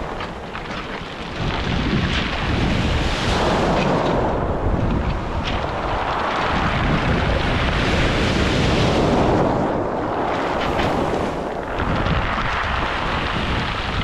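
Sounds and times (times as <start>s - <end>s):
stones clattering in the wash: 0.0s - 4.2s
waves surging over stones: 0.0s - 14.0s
wind buffeting the microphone: 0.0s - 14.0s.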